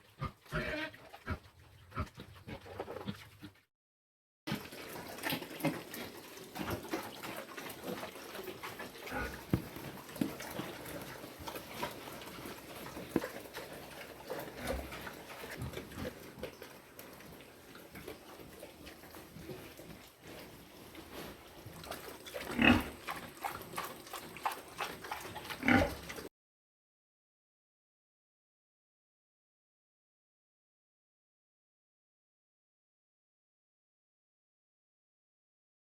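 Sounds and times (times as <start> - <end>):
pig calls: 0.0 - 3.6, 6.6 - 16.6, 21.8 - 26.3
pigs crunching and chewing: 0.0 - 3.6, 4.5 - 26.3.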